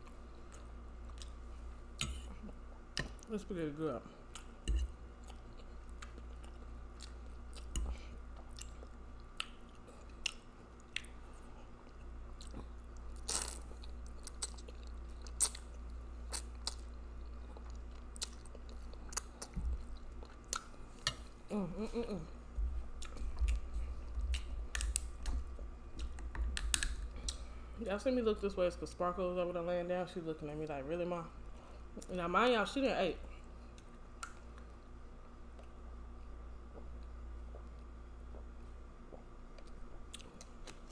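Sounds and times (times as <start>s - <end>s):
person humming: 21.5s - 22.4s.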